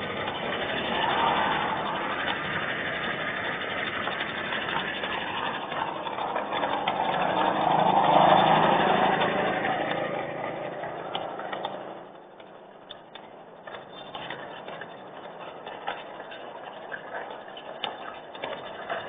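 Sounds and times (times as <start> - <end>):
vehicle passing: 0.0 - 12.4.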